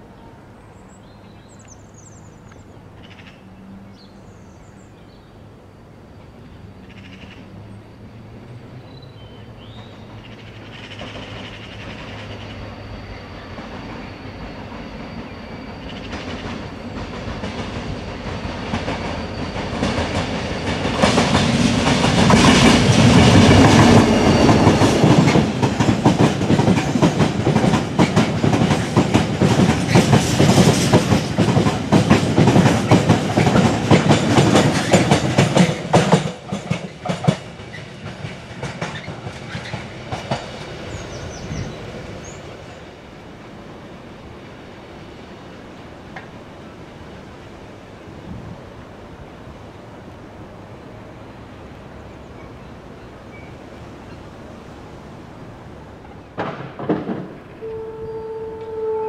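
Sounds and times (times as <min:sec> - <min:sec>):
diesel locomotive approaching: 0:00.0 - 0:59.0
wheels clacking over rail joints: 0:09.6 - 0:43.2, 0:52.3 - 0:59.0.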